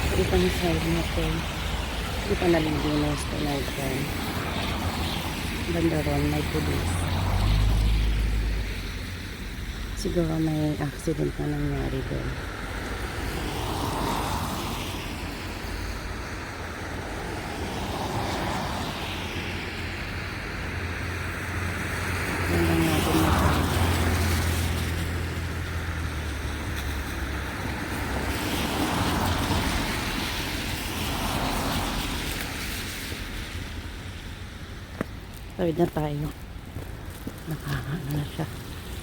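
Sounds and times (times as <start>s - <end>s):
heavy vehicle engine hum: 0.0s - 31.9s
cars passing: 0.0s - 39.0s.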